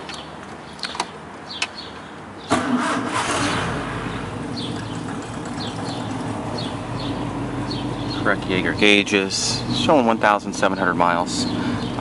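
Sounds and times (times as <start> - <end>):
car engine starting and idling: 2.5 - 12.0.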